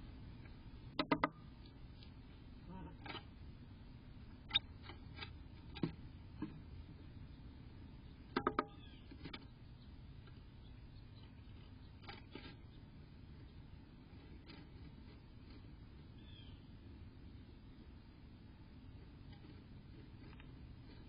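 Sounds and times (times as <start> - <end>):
faint background hiss: 0.0 - 21.0
bird tapping on birdhouse: 0.9 - 1.4, 8.3 - 9.5.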